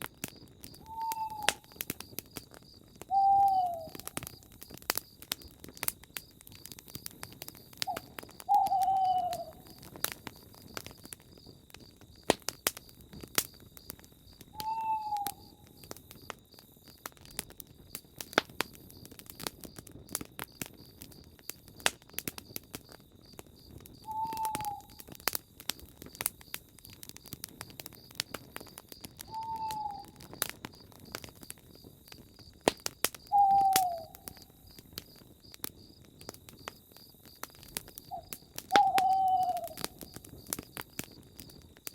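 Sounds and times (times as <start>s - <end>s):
campfire crackling and popping: 0.0s - 41.9s
owl hooting: 0.8s - 1.8s, 3.1s - 4.2s, 7.9s - 9.8s, 14.6s - 15.6s, 24.1s - 25.0s, 29.3s - 30.2s, 33.3s - 34.4s, 38.1s - 39.9s.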